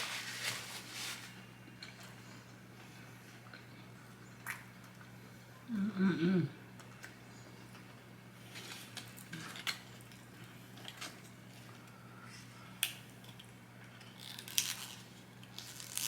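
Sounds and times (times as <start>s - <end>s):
low steady hum: 0.0s - 16.0s
crunchy crackles: 14.0s - 16.0s.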